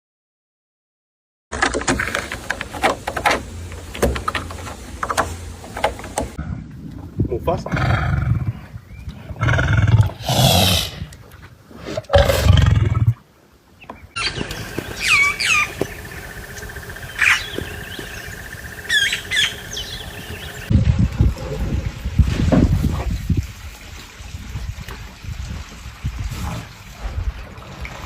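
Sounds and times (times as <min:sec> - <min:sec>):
lion roaring: 0:09.4 - 0:11.2, 0:12.0 - 0:13.2
birds chirping: 0:13.8 - 0:20.7.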